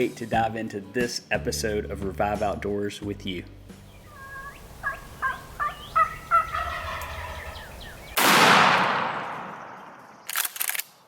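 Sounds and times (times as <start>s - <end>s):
wild turkey calling: 3.8s - 8.2s
shotgun blast: 8.2s - 9.7s.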